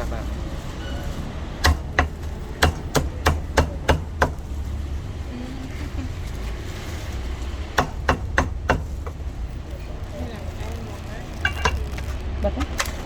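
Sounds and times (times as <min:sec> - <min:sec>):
traffic rumble: 0:00.0 - 0:13.0
cleaver chopping meat on board: 0:01.6 - 0:04.5, 0:07.8 - 0:09.0.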